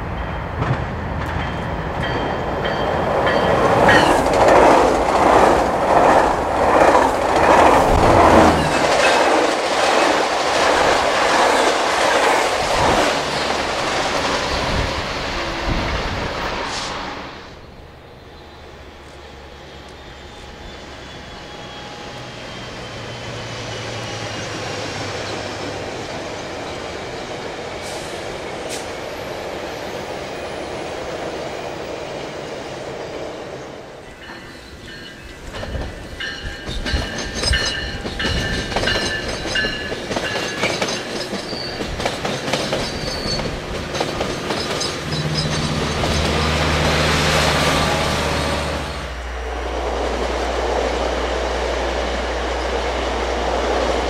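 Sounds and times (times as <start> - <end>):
train rumble: 0.0 - 54.0
wheel squeal: 19.2 - 25.4, 40.5 - 46.6
wheels clicking over rail joints: 35.2 - 46.6.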